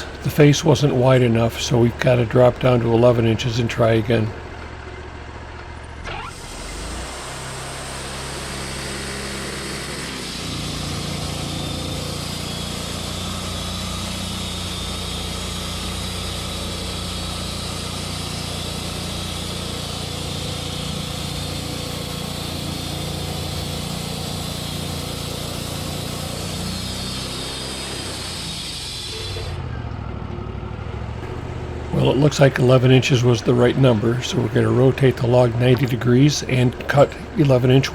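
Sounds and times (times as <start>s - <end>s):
sawmill engine running: 0.0s - 37.9s
saw blade hissing through log: 6.1s - 29.6s, 32.0s - 37.9s.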